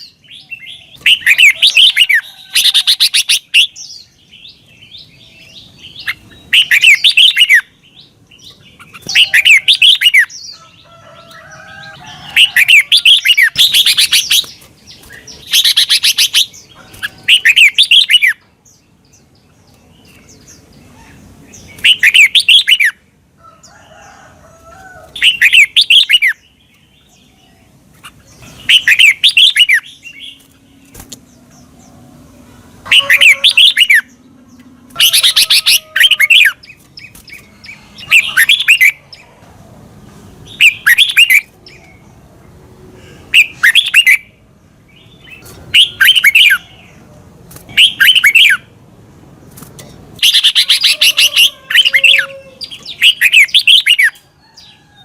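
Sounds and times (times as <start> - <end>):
bird warbling: 8.8 - 10.7, 28.0 - 39.3, 45.3 - 47.0, 50.2 - 54.7.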